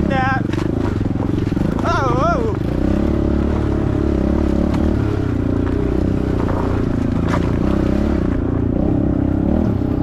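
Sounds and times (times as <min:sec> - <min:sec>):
small motorbike engine running: 0:00.0 - 0:10.0.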